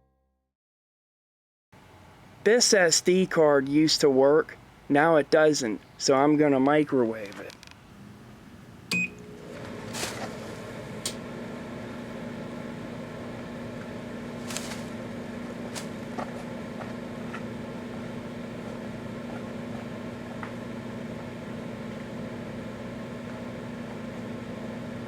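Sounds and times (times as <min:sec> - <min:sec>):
microwave oven humming: 0:07.9 - 0:25.0.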